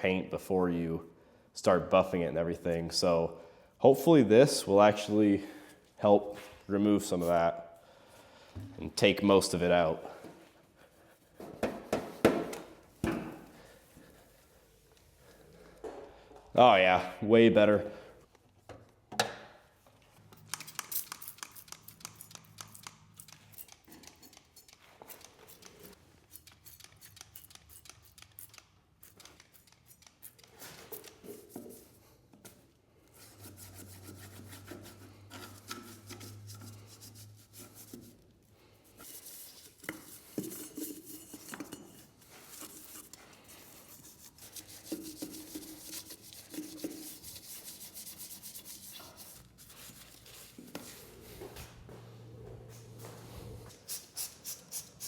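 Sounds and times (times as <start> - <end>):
clay bar scrubbing painted metal: 33.1 - 50.6.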